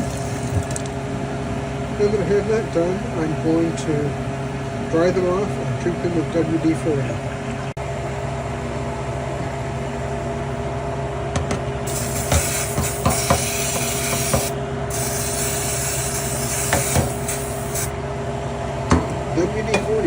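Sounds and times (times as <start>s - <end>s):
steady low hum: 0.0s - 20.0s
aerosol spray hissing: 11.9s - 17.9s.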